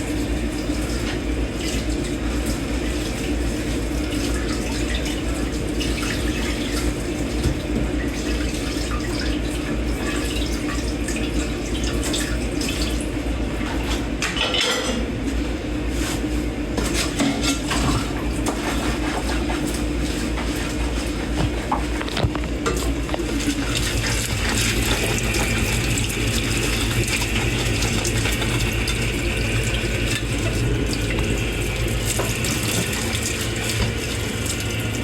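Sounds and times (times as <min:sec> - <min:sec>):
tap water running into sink: 0:00.1 - 0:13.1, 0:21.3 - 0:35.0
dishes clinking: 0:14.2 - 0:15.0.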